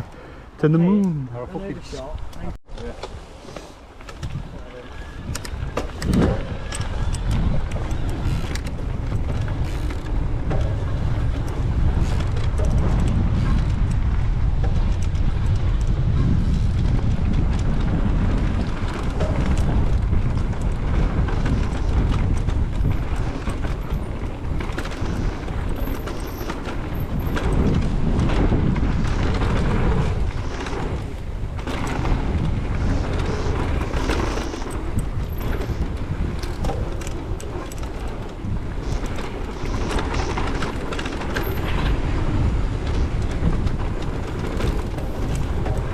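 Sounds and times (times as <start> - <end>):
wind buffeting microphone: 0.0 - 45.9
bike clattering over bumps: 5.2 - 45.9
tyres rolling over dirt: 16.0 - 45.9.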